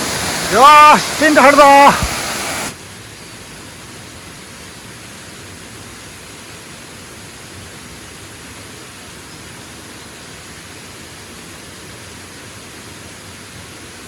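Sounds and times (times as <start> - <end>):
waterfall roaring: 0.0 - 2.9.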